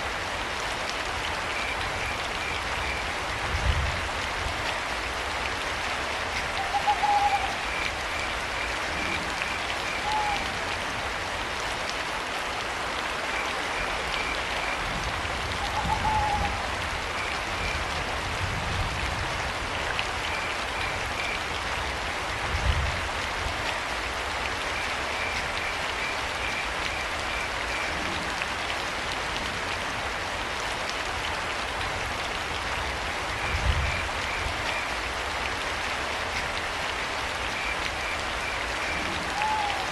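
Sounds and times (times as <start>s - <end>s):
steady rain: 0.0s - 39.9s
owl-like hooting calls: 6.6s - 7.6s, 10.0s - 10.5s, 15.6s - 16.7s, 39.3s - 39.9s.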